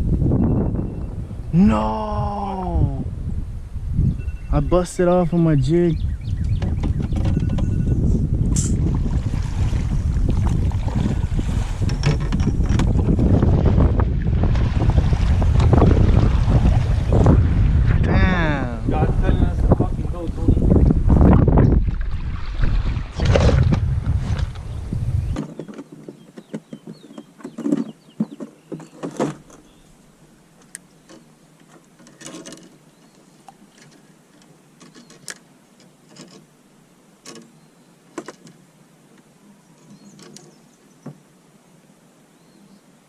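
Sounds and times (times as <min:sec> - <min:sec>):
wind buffeting microphone: 0:00.0 - 0:25.6.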